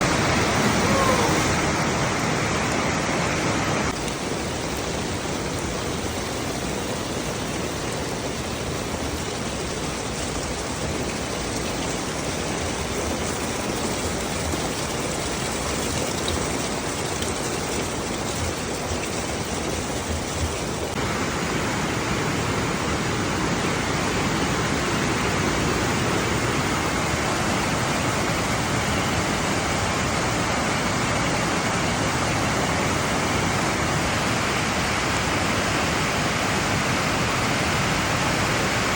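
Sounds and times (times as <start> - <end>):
floodwater rushing: 0.0 - 38.9.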